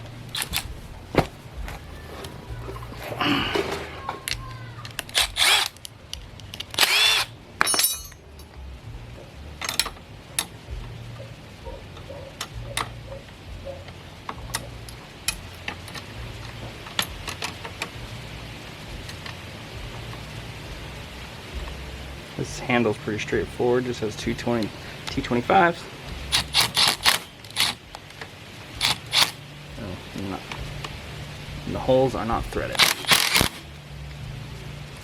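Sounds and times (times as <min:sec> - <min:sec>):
cordless power driver bursts: 0:05.1 - 0:05.8, 0:06.8 - 0:07.3, 0:28.8 - 0:29.4, 0:32.8 - 0:33.6
clicks and knocks of metal parts: 0:09.6 - 0:10.5, 0:32.7 - 0:33.6.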